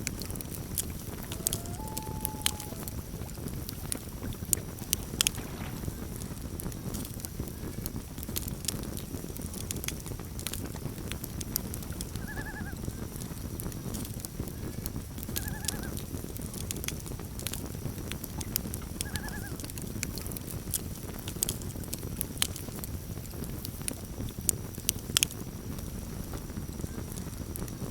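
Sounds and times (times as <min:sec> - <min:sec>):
campfire crackling and popping: 0:00.0 - 0:27.9
wavering loon calls: 0:00.9 - 0:03.9, 0:12.2 - 0:12.8, 0:15.4 - 0:16.0, 0:19.0 - 0:19.6.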